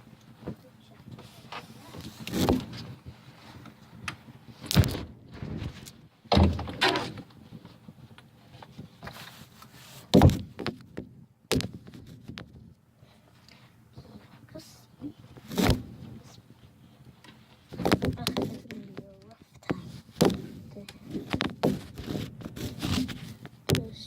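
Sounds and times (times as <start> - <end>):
shuffling and rustling: 0.0 - 10.9, 11.7 - 24.0
thumps and knocks: 4.0 - 7.3, 10.1 - 12.7, 17.3 - 24.0.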